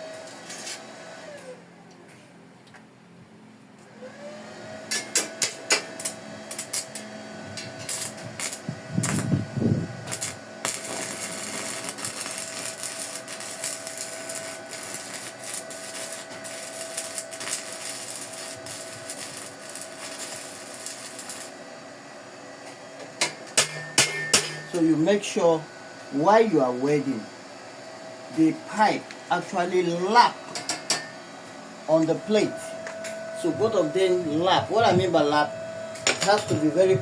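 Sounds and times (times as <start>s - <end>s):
welding crackling hiss: 5.2s - 7.1s, 7.8s - 9.4s, 10.0s - 21.6s.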